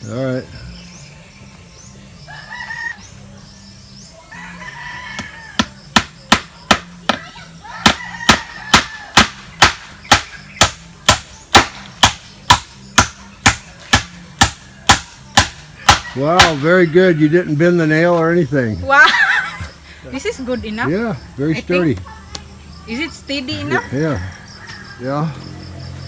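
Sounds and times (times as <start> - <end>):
hammer striking nail into wood: 5.6 - 7.2, 7.8 - 16.7.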